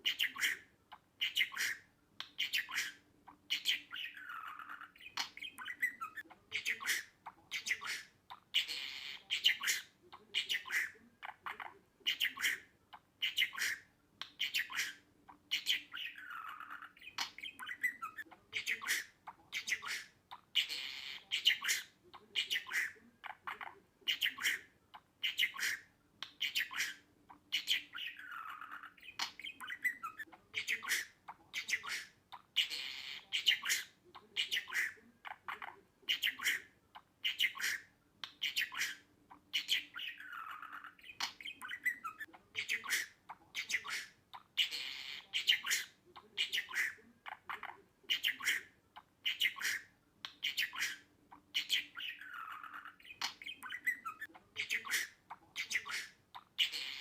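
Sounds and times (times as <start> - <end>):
budgerigar chirping: 0.0 - 57.0.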